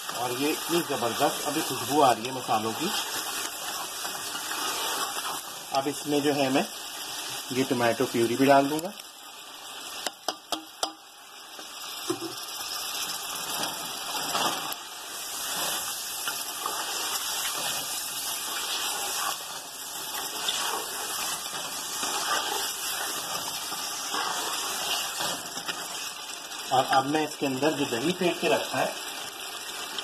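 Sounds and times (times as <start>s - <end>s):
wooden spatula stirring: 0.0s - 6.0s, 15.2s - 27.2s
chicken sizzling in a pot: 0.0s - 30.0s.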